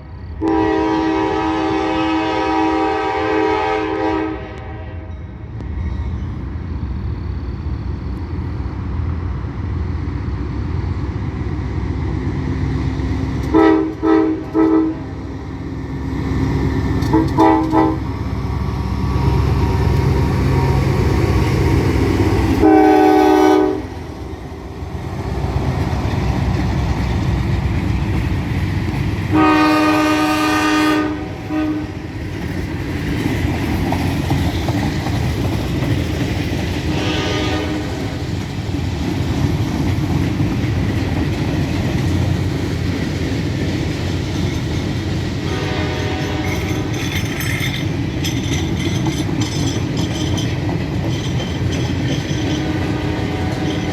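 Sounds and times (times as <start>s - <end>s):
locomotive engine rumble: 0.0s - 53.9s
rail cars clattering past: 0.0s - 53.9s
locomotive horn blasts: 0.4s - 5.1s, 13.5s - 15.2s, 17.1s - 18.1s, 22.5s - 24.0s, 29.3s - 32.0s, 36.9s - 38.1s, 45.4s - 47.0s, 52.4s - 53.9s.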